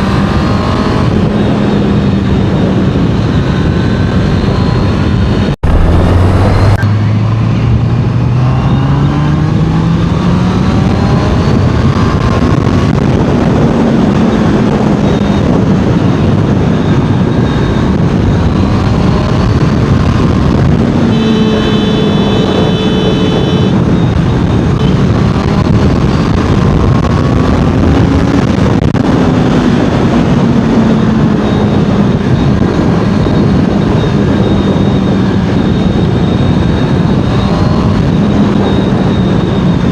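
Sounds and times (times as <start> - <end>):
motorcycle engine and exhaust: 0.0 - 39.9
wind rush on microphone: 0.0 - 39.9
steady high-pitched tone: 5.6 - 7.0.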